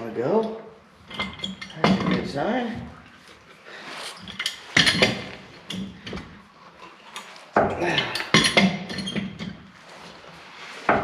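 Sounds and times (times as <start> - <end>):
metal tools clinking and clattering: 0.4 - 2.5, 4.2 - 7.3, 7.9 - 9.7.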